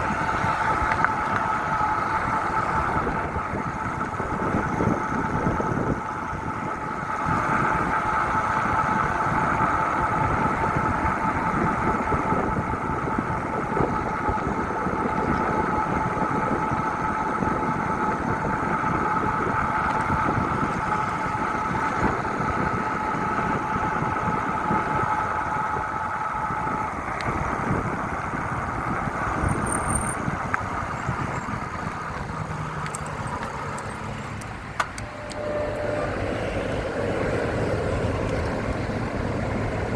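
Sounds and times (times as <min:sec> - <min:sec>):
bike riding noise: 0:00.0 - 0:39.9
wind on microphone: 0:00.0 - 0:39.9
two-tone hum: 0:25.0 - 0:38.6
sharp clicks: 0:29.4 - 0:35.4.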